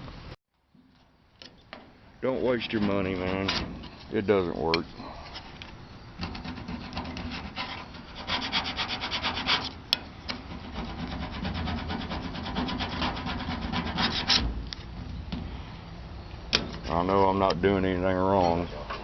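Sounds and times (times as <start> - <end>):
rubbing strokes on surface: 6.2 - 14.6.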